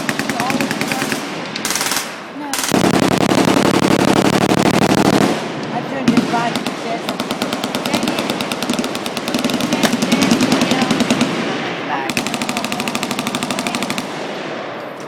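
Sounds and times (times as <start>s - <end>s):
machine-gun fire: 0.0s - 14.7s.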